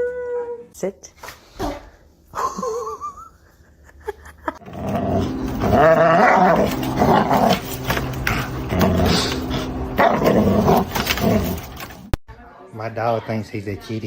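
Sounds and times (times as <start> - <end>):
dog growling: 4.6 - 12.1.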